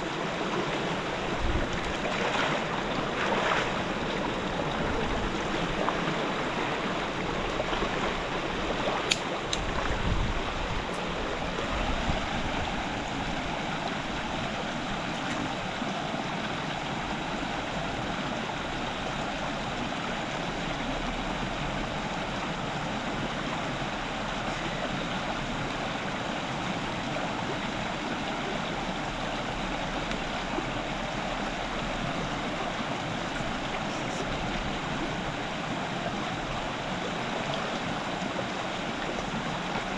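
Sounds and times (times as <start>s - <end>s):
river water rushing: 0.0s - 39.9s
sharp click: 9.1s - 9.7s.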